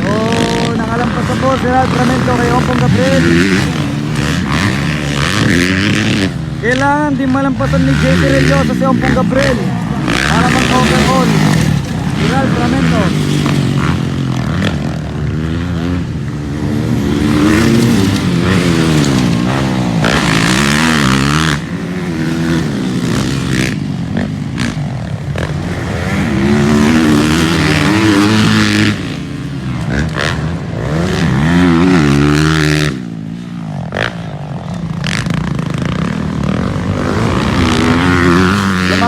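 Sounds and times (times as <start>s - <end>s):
dirt bike engines revving: 0.0s - 39.0s.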